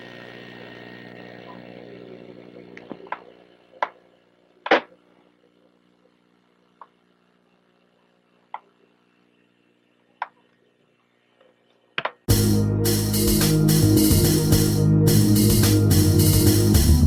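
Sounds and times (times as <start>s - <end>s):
loud music with drums: 12.3s - 17.0s.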